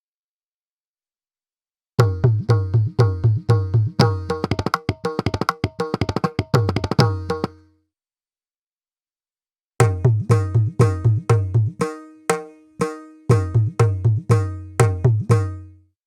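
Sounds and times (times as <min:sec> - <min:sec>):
hand drum pattern: 0:02.0 - 0:07.6, 0:09.8 - 0:15.7.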